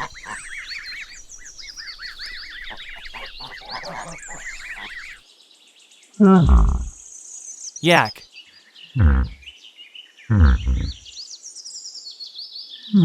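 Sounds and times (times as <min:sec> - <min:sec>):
goslings peeping: 0:00.0 - 0:05.2.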